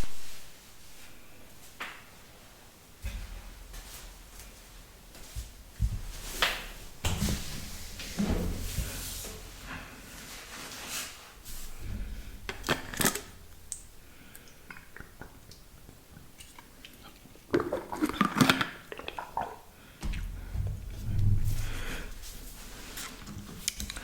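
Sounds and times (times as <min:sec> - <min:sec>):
low rubbing rumbles: 0:20.2 - 0:22.8.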